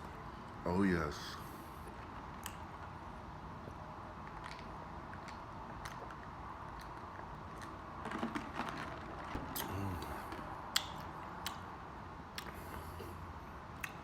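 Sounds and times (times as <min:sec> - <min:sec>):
mouth clicks and lip smacks: 0:04.2 - 0:07.8, 0:09.5 - 0:11.7, 0:12.3 - 0:13.2, 0:13.8 - 0:14.0.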